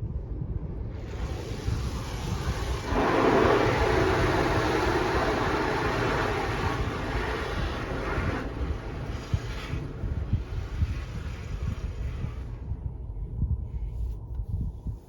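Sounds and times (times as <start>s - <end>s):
low rumble: 0.0s - 15.0s
car wash spray or brushes: 1.0s - 12.6s.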